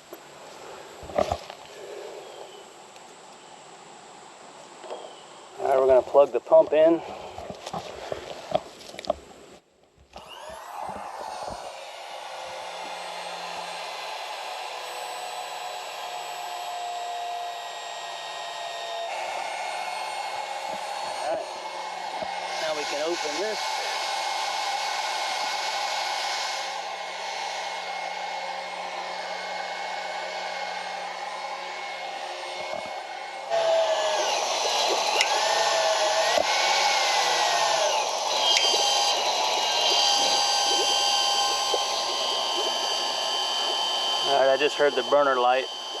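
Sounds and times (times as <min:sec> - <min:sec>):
electric water pump whirring: 0:10.1 - 0:46.0.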